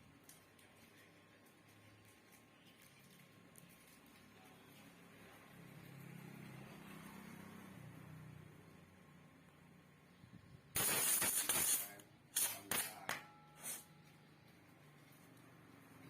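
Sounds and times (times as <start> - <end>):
spray hissing: 10.8 - 12.9, 13.6 - 13.8.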